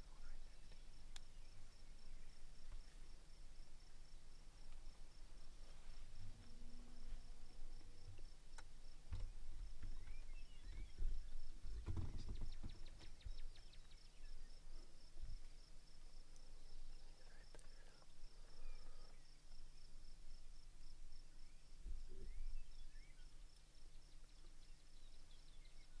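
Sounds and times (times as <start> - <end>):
bird chirps: 9.2 - 11.5, 12.1 - 14.6.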